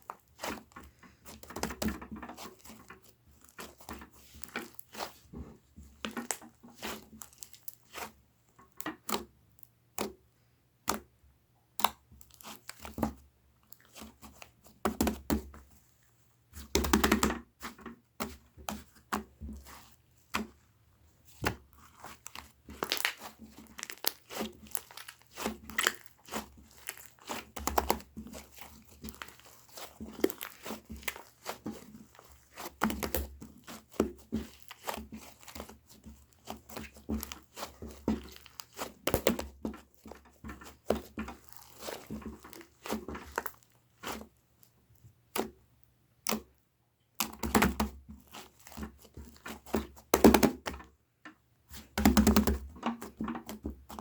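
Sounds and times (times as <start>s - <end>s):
slime clicking and crackling: 6.0s - 8.1s, 21.3s - 44.2s.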